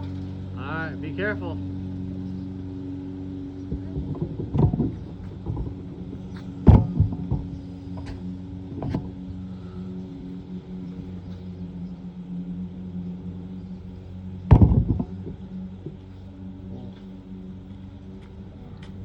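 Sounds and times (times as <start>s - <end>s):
low mechanical hum: 0.0s - 19.0s
knocks and thumps of climbing: 3.6s - 9.2s, 14.4s - 16.0s.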